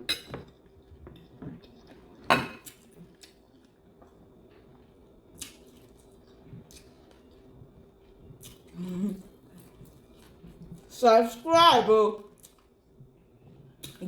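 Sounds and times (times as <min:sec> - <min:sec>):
cutlery clinking on plate: 0:00.1 - 0:00.6.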